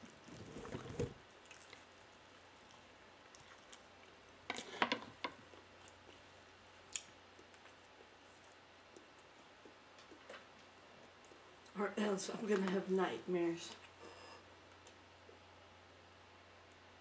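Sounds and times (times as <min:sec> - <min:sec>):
chewing soft food: 0:00.0 - 0:11.8.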